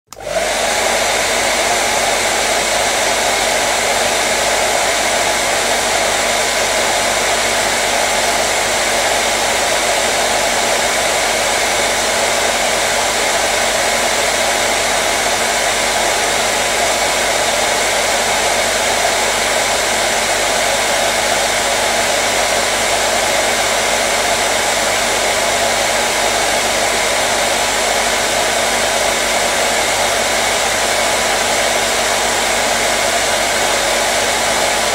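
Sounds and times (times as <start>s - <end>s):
hair dryer running: 0.1s - 34.9s.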